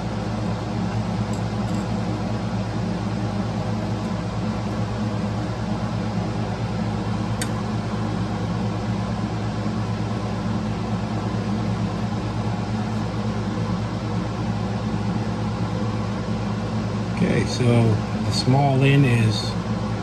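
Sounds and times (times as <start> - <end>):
motor humming: 0.0 - 8.6.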